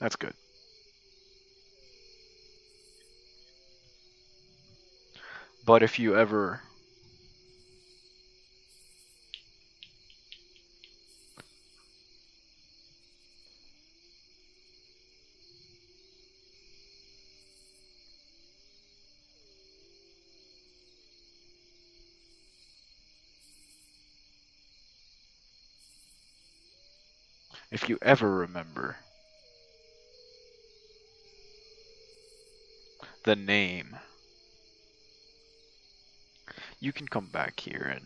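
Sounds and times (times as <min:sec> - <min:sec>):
crickets trilling and chirping: 0:00.0 - 0:38.0.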